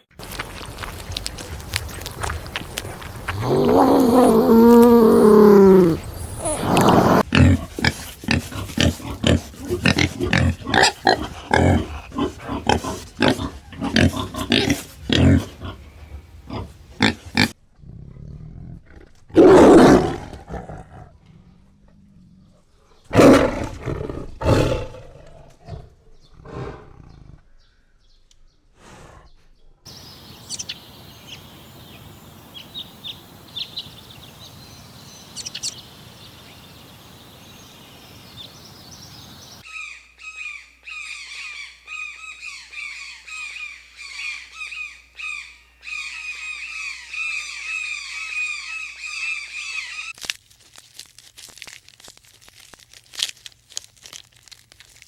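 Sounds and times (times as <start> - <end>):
animal roars: 3.3 - 27.5
bird chirps: 3.4 - 7.2, 29.9 - 50.1
outdoor hiss: 29.9 - 39.6
rapid repeated bird calls: 29.9 - 50.2.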